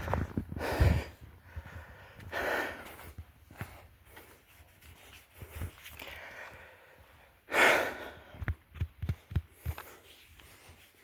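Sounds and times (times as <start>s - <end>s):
person breathing heavily: 0.0s - 4.4s, 5.4s - 8.6s.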